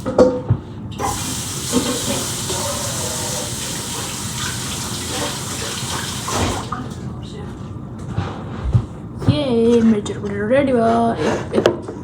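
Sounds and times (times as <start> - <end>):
running water rushing: 1.0 - 7.0.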